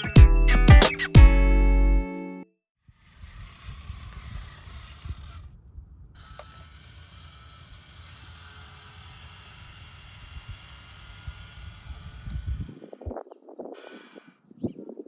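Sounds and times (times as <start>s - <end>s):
toy electric motor whirring and clicking: 2.8s - 5.6s, 6.2s - 13.1s, 13.8s - 14.4s.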